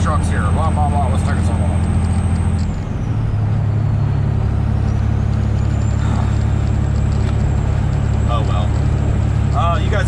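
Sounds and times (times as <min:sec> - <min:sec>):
truck diesel engine drone: 0:00.0 - 0:10.0.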